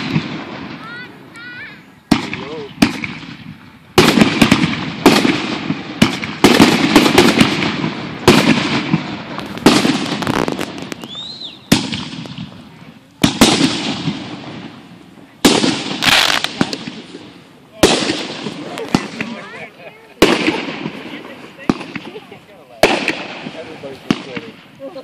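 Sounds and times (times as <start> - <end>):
firework rumble and crackle: 0.0 - 25.0
firework whistle: 10.2 - 11.9
firework shell bursts: 15.4 - 17.2.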